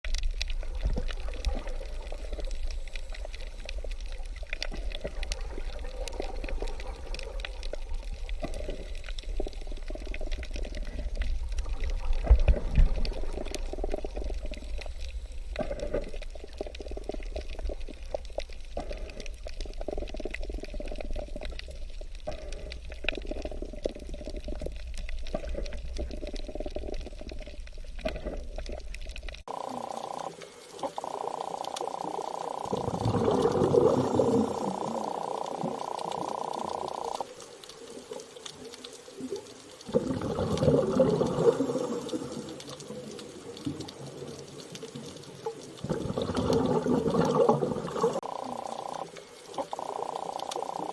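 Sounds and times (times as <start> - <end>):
bubbling churning water: 0.0 - 50.9
small clicks: 48.2 - 50.9.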